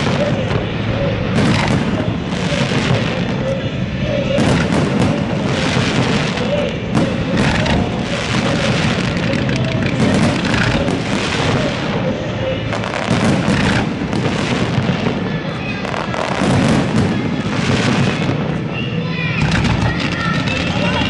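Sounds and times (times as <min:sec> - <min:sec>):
fireworks bangs and crackling: 0:00.0 - 0:21.0.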